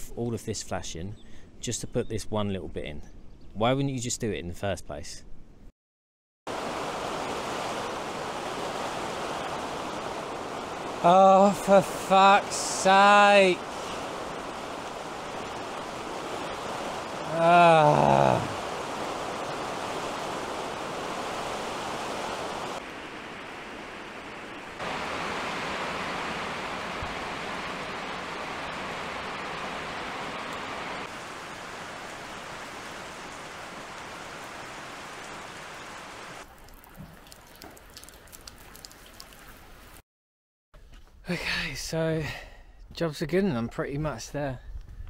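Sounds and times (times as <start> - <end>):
rain pouring: 6.5 - 40.0
water drips and splashes: 6.5 - 40.0.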